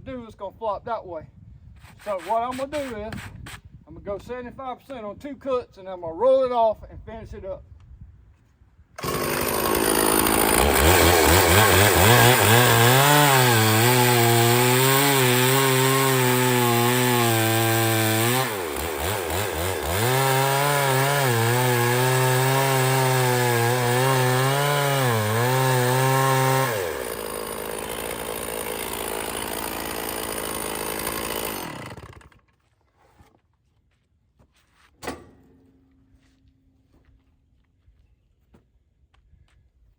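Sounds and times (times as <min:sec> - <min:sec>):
chainsaw cutting log: 0:09.0 - 0:32.6.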